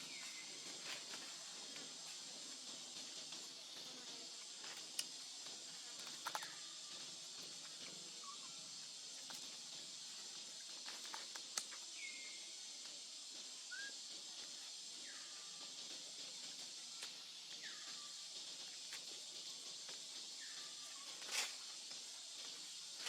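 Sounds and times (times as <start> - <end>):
steady outdoor hiss: 0.0 - 23.0
monkeys squeaky calls: 8.2 - 8.7, 13.7 - 14.0.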